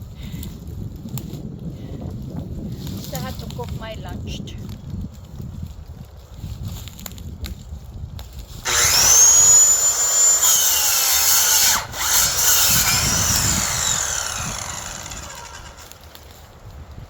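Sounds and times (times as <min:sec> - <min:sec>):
electric saw cutting wood: 0:08.7 - 0:16.1.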